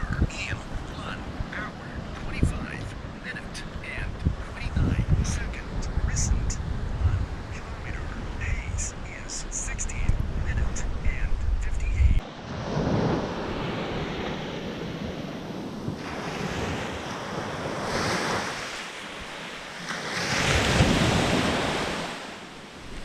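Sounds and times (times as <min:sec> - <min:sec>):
wind on microphone: 0:00.0 - 0:22.2
ocean surf breaking: 0:12.2 - 0:23.0.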